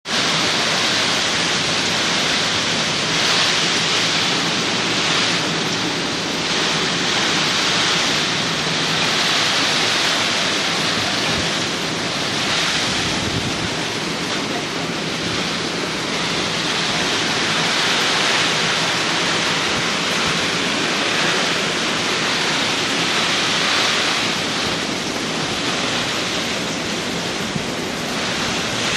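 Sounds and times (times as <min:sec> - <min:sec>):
gusting wind and heavy rain: 0:00.0 - 0:28.9.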